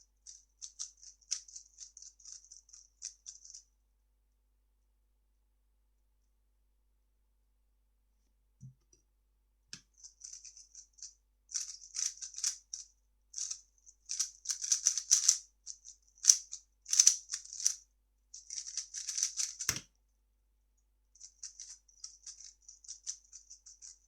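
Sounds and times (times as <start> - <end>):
puzzle cube clicking and rattling: 11.6 - 17.8, 18.4 - 19.8, 21.2 - 24.0.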